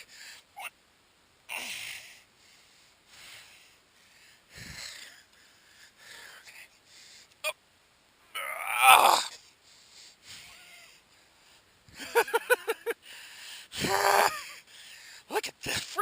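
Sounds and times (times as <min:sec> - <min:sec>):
man breathing hard: 0:01.6 - 0:07.4, 0:13.0 - 0:14.0, 0:14.6 - 0:15.3.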